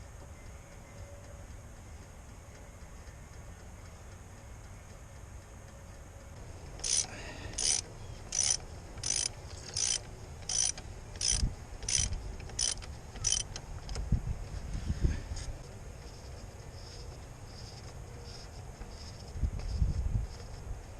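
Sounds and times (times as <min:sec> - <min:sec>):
mechanism squeaking rhythmically: 0:00.1 - 0:13.9.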